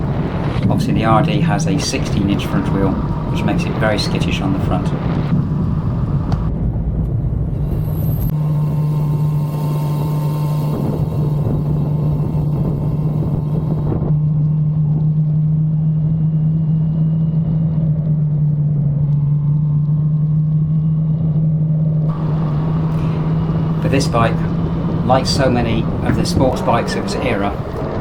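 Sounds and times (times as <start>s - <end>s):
motorcycle engine running: 0.0s - 6.5s, 8.3s - 14.0s, 22.1s - 28.0s
road and wind noise: 0.0s - 14.2s, 22.1s - 28.0s.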